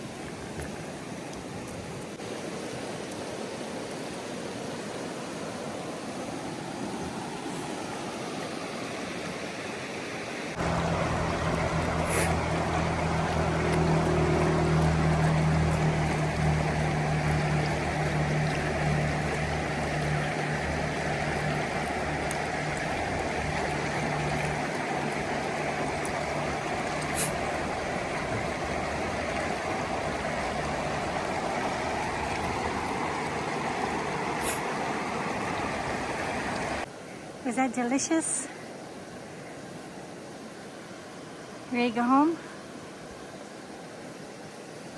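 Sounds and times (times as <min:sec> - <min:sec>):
constant rushing noise: 0:10.4 - 0:36.9
low motor hum: 0:10.6 - 0:36.8.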